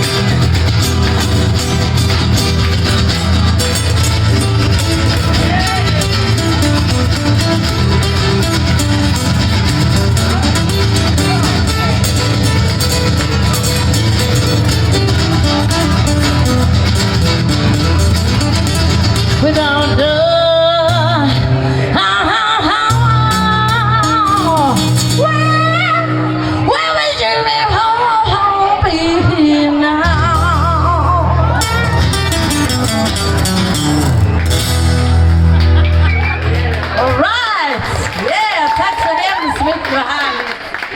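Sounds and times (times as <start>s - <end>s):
live band music: 0.0s - 26.7s, 30.0s - 38.4s
person singing with vibrato: 19.3s - 31.6s.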